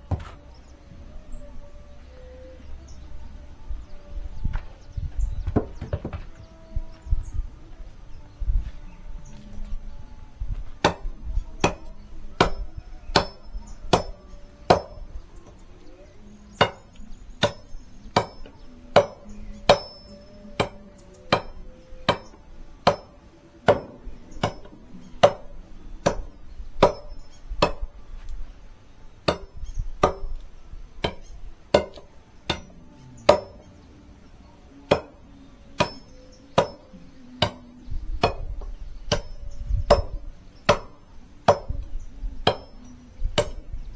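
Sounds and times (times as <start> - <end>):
axe chopping firewood: 0.1 - 0.4, 10.8 - 15.0, 16.6 - 27.9, 29.2 - 30.4, 31.0 - 33.7, 34.9 - 41.8, 42.5 - 42.8, 43.4 - 43.8.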